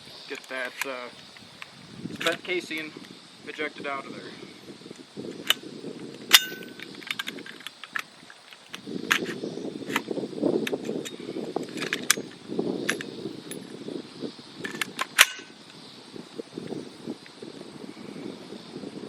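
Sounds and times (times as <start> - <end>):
metallic clicks from rifle handling: 0.3 - 2.9, 6.2 - 13.6, 14.6 - 15.5.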